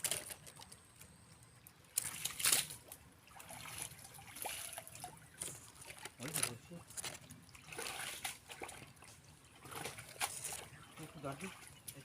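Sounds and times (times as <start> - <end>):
shallow water sloshing: 1.9 - 12.0
water splash: 2.0 - 6.3, 7.5 - 9.0.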